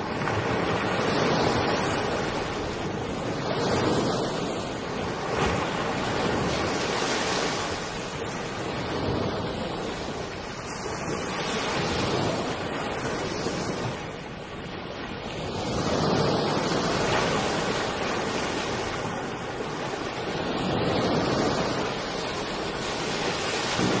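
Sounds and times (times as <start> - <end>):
floodwater rushing: 16.6 - 24.0.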